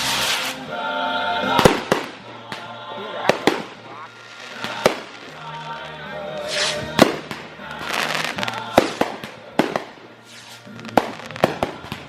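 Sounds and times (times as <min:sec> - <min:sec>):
fireworks bangs: 0:00.0 - 0:00.7, 0:01.4 - 0:12.0
fireworks crackling: 0:00.0 - 0:12.0.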